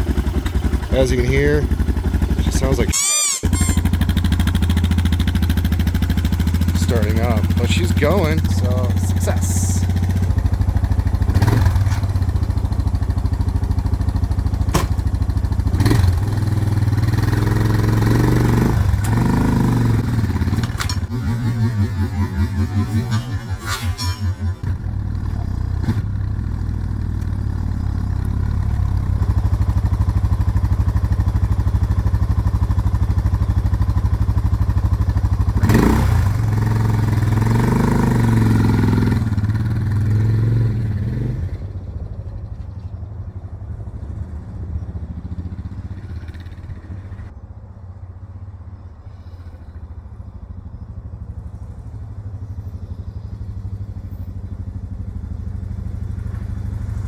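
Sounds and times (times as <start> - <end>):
motorcycle engine running: 0.0 - 47.4, 49.7 - 57.0.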